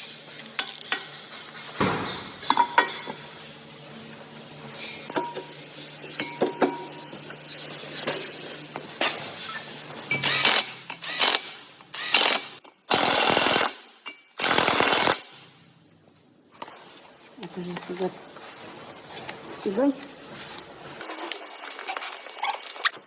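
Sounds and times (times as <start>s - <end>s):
pneumatic air tool bursts: 9.4s - 13.8s, 14.4s - 15.6s.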